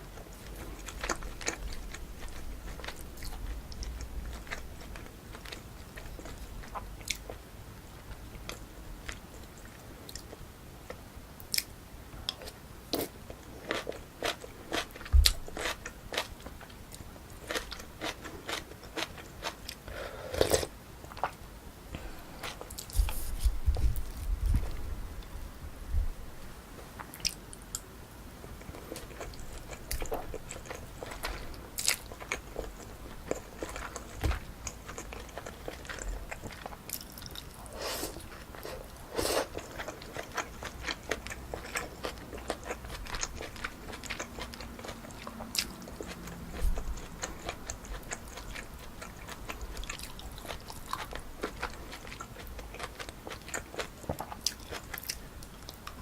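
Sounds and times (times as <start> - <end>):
close chewing and biting: 0.1 - 7.4, 12.3 - 21.4, 28.6 - 56.0.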